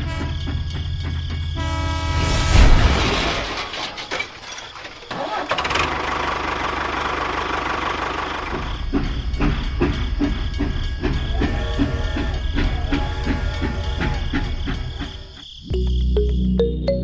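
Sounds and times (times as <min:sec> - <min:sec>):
engine starting and running: 0:02.6 - 0:15.4.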